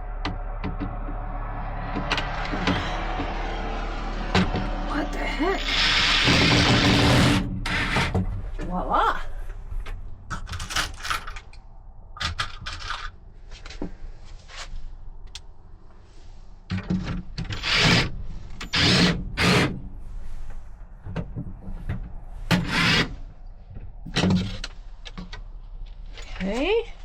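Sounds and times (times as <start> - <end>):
wood scraping on wood: 17.6 - 25.4.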